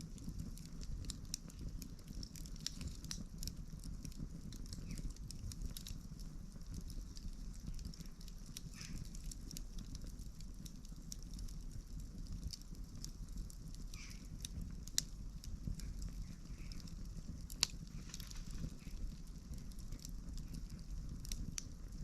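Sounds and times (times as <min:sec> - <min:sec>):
low rumble of flames: 0:00.0 - 0:22.0
wood crackling and popping: 0:00.0 - 0:22.0
loud sharp fire pops: 0:06.8 - 0:10.5, 0:12.2 - 0:22.0.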